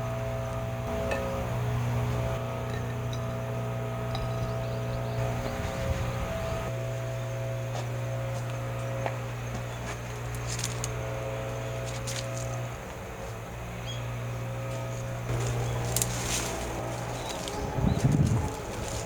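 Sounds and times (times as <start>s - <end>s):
low hum: 0.0s - 19.0s
wood fire crackling: 14.9s - 19.0s.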